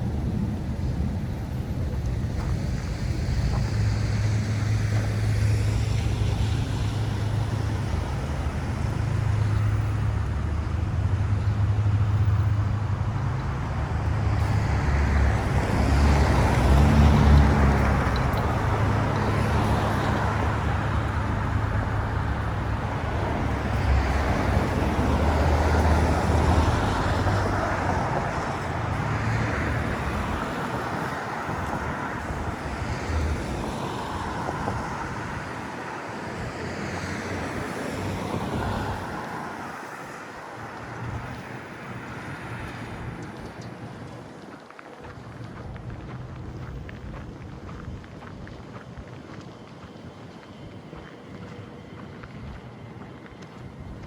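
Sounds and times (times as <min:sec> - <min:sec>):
low engine rumble: 0:00.0 - 0:54.0
vehicles passing on street: 0:00.0 - 0:54.0.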